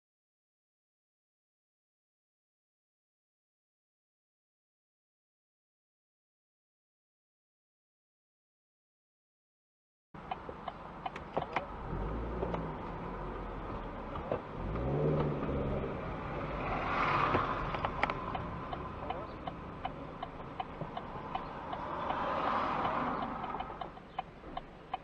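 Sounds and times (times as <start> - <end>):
steady ticking: 10.2 - 11.8, 17.3 - 25.0
vehicles passing: 10.2 - 25.0
vehicle engine revving: 10.5 - 24.6.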